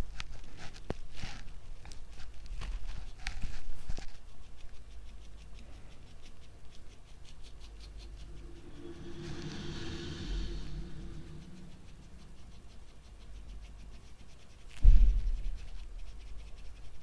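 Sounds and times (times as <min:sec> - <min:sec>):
low hum: 0:07.3 - 0:14.3.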